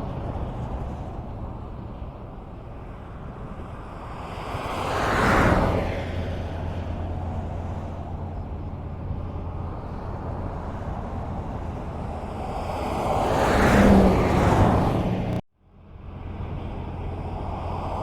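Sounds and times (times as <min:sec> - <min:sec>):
highway road noise rumble: 0:00.0 - 0:18.0
vehicle passing close: 0:04.6 - 0:15.4.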